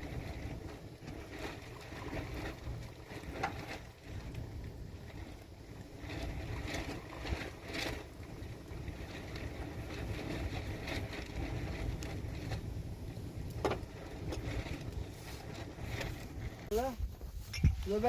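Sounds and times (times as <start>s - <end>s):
wind buffeting microphone: 0.0s - 18.0s
knocks and scrapes: 13.6s - 18.0s.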